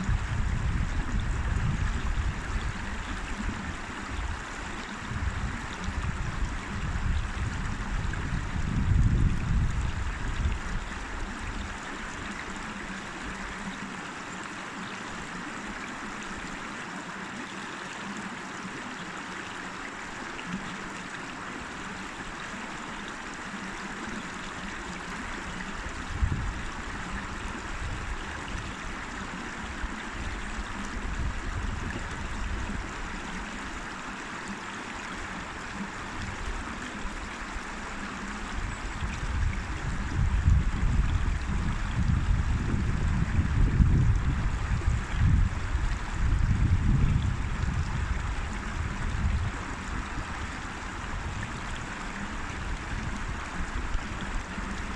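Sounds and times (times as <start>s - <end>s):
river water rushing: 0.0s - 54.9s.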